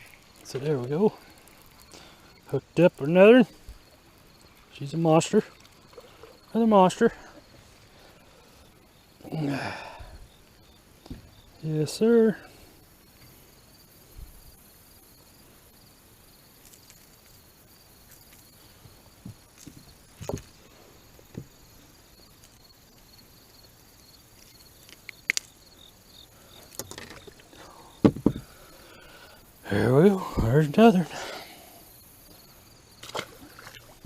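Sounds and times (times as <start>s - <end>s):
insects chirping: 0.0s - 34.0s
thumps: 28.0s - 28.6s.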